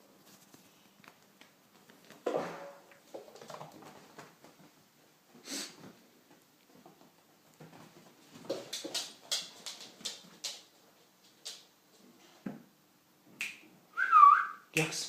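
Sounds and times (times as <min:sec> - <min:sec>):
animals sniffing and scuffling: 0:00.0 - 0:02.2.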